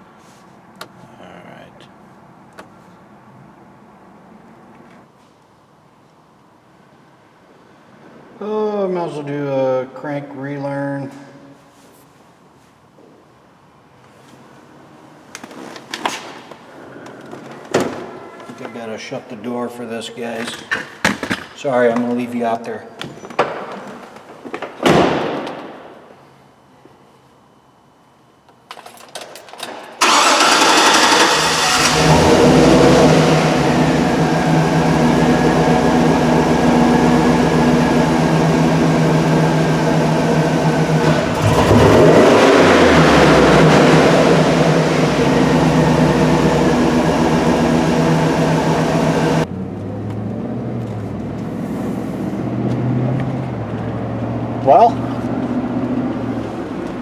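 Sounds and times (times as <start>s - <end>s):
truck engine idling: 30.0s - 49.4s.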